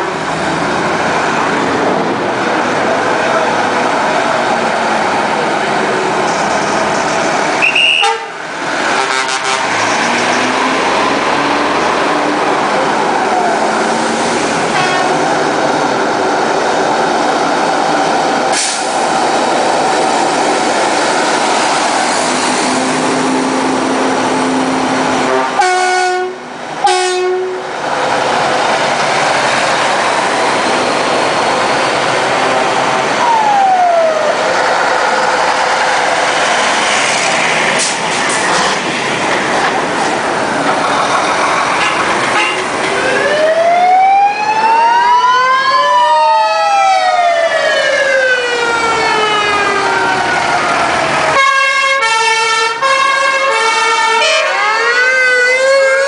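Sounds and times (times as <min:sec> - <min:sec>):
truck engines passing: 0:00.0 - 0:56.0
truck horns tooting: 0:07.6 - 0:10.1, 0:14.6 - 0:15.4, 0:25.2 - 0:27.7, 0:41.8 - 0:42.8, 0:51.3 - 0:55.0.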